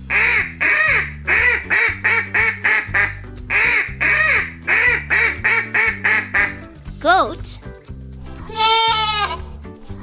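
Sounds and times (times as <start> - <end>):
background music: 0.0 - 10.0
duck quacking: 0.1 - 6.7.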